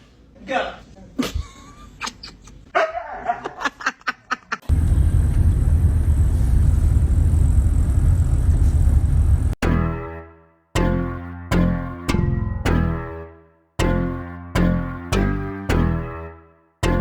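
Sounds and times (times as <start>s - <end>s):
dog barking: 2.8s - 3.6s
loud low rumble: 4.7s - 9.6s.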